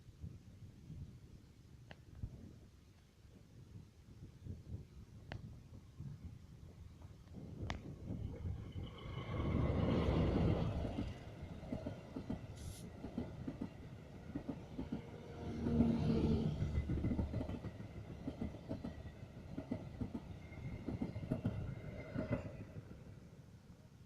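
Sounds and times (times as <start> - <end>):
train wheels rumbling and clattering: 7.2 - 23.0.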